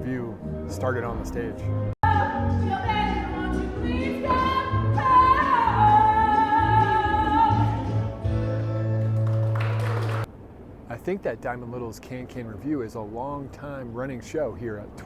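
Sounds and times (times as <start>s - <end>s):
band backing music: 0.0s - 10.2s
operatic singing voice with vibrato: 2.0s - 8.3s.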